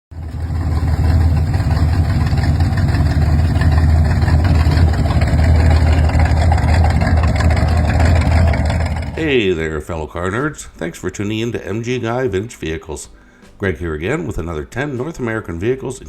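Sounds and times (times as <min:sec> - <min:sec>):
car engine rumbling: 0:00.1 - 0:09.5.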